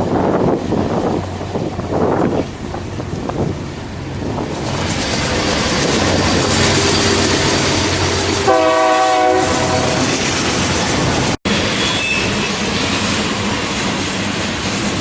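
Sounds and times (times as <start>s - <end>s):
rail machine rumble and wheel clatter: 0.0s - 15.0s
horn blast: 8.4s - 10.2s.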